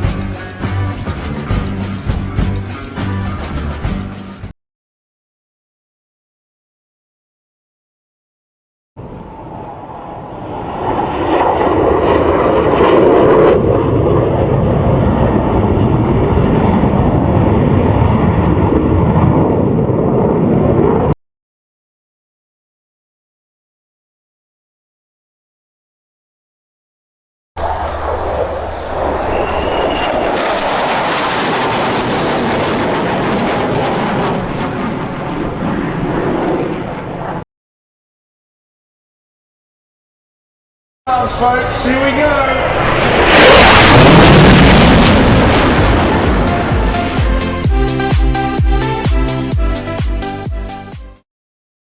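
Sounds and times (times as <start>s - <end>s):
jet fighter passing: 9.0s - 21.2s, 27.6s - 37.4s, 41.1s - 47.6s.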